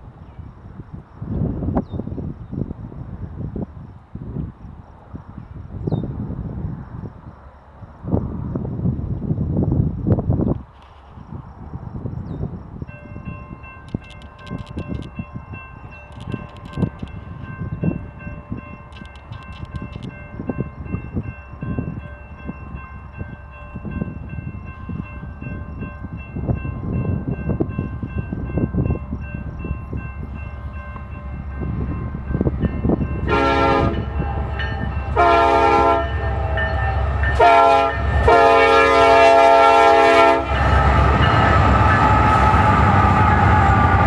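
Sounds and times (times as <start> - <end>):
diesel train rumbling: 0.0 - 44.0
locomotive air horn blasts: 33.2 - 44.0.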